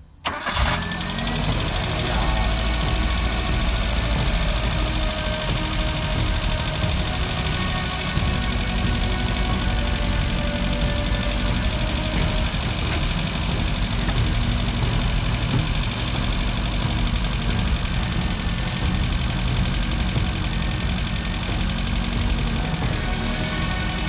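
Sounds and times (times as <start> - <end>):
van engine idling: 0.2 - 24.0.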